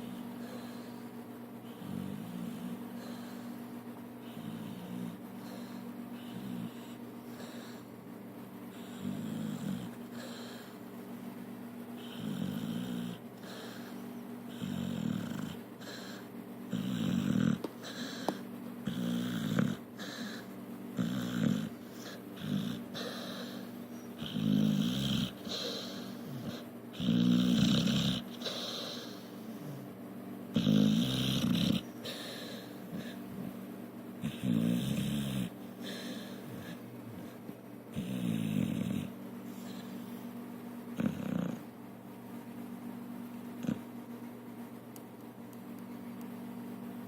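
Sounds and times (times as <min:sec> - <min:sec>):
dog snoring: 0:01.6 - 0:03.6, 0:04.2 - 0:07.9, 0:08.7 - 0:10.8, 0:12.0 - 0:33.6, 0:34.2 - 0:40.1, 0:40.9 - 0:41.7, 0:43.6 - 0:43.9.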